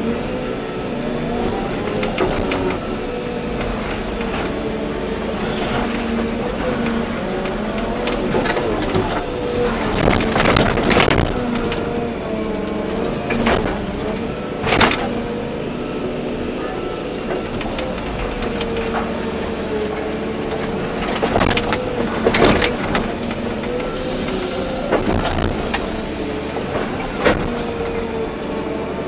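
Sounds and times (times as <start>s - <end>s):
excavator diesel engine running: 0.0s - 29.0s
sharp knocks and clunks: 1.2s - 15.4s, 16.8s - 28.2s
hiss: 23.9s - 24.8s.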